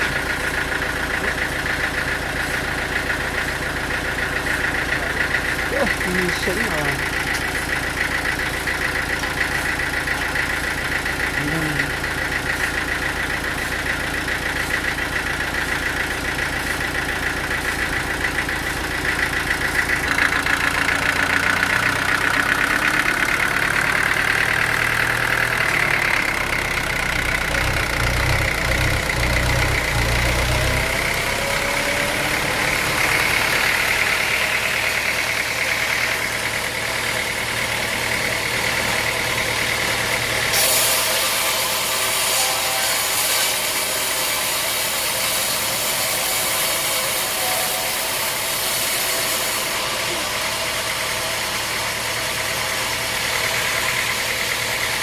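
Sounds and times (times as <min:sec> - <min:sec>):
sawmill engine running: 0:00.0 - 0:55.0
saw cutting into wood: 0:40.5 - 0:50.8.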